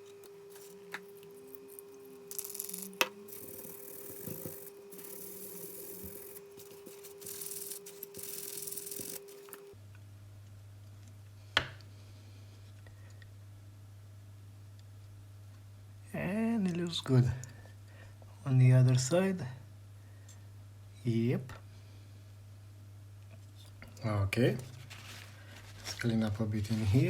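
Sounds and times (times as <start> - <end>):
brush scrubbing circuit board: 0.0 - 9.7
steady hum: 0.0 - 10.4.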